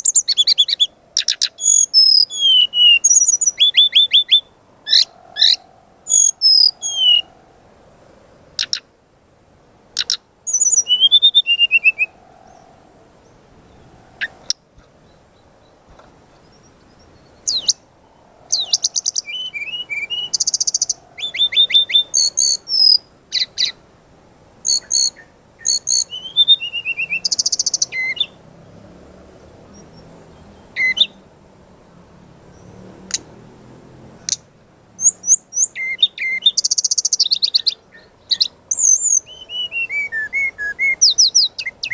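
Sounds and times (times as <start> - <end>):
bird singing rapid high notes: 0.0 - 7.4, 10.0 - 15.8, 16.4 - 23.8, 24.6 - 28.4, 29.7 - 31.2, 35.0 - 41.9.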